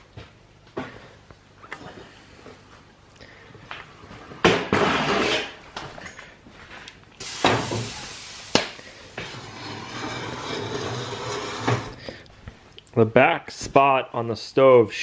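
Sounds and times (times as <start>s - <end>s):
hissing: 7.2s - 9.5s.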